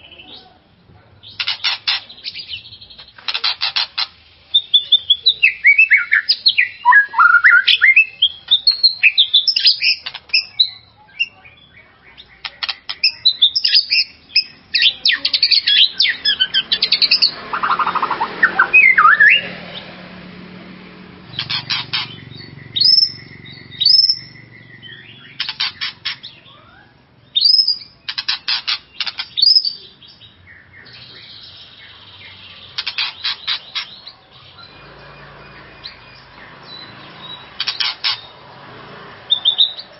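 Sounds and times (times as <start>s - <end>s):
songbird singing whistled phrases: 4.5s - 19.5s, 22.0s - 28.3s, 29.0s - 32.6s, 39.3s - 39.9s.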